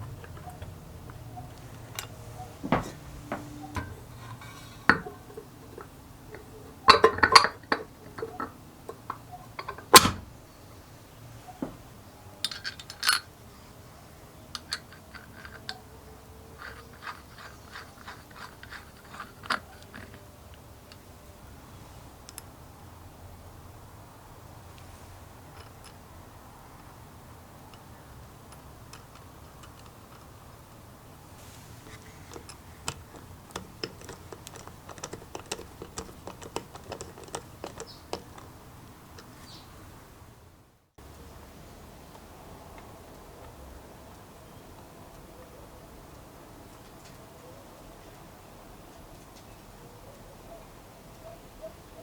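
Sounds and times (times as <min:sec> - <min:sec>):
metal tools clinking on workbench: 0:01.5 - 0:10.2, 0:12.4 - 0:13.3, 0:31.4 - 0:39.6.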